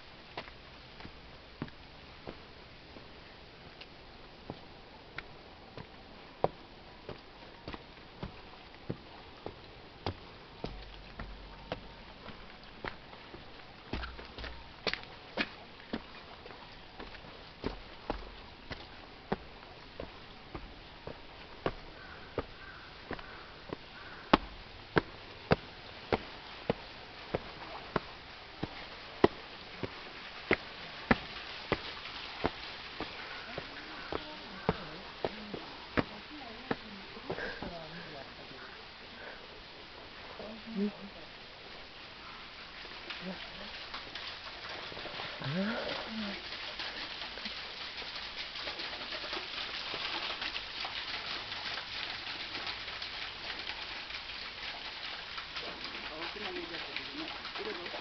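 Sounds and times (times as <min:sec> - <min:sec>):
waterfall rushing and splashing: 0:00.0 - 0:41.9
faint steady hiss: 0:00.0 - 0:58.0
footsteps on a hard path: 0:00.3 - 0:03.1, 0:04.4 - 0:37.9.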